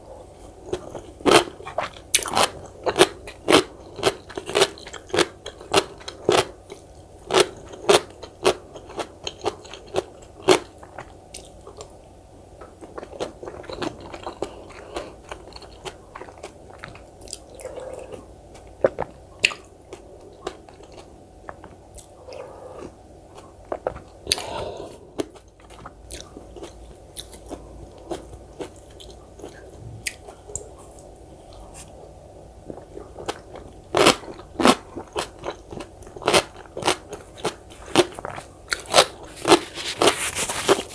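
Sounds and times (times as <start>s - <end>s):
wet chewing: 12.6s - 40.9s.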